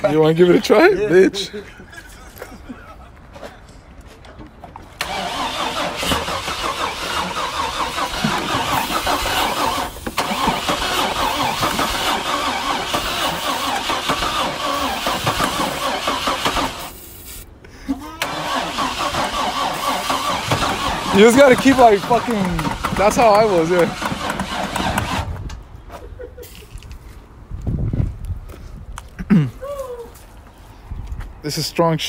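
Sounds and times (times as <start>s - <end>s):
truck engine starting and running: 4.3s - 25.8s.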